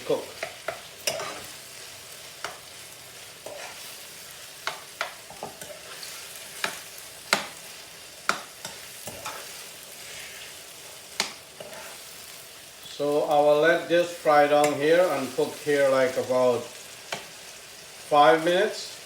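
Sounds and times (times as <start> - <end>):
meat sizzling in a pan: 0.0 - 19.0
utensil scraping a pan: 0.4 - 1.6, 3.4 - 4.0, 8.6 - 10.6, 11.2 - 12.1.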